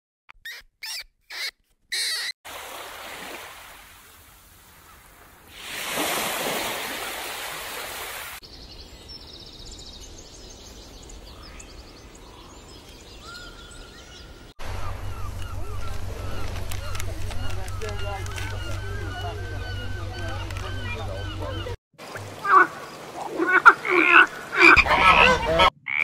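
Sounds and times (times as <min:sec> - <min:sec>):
bird calls and chirps: 0:00.3 - 0:02.4, 0:08.4 - 0:21.8
short high squeaks: 0:00.3 - 0:02.4
surf washing onto beach: 0:02.5 - 0:08.4.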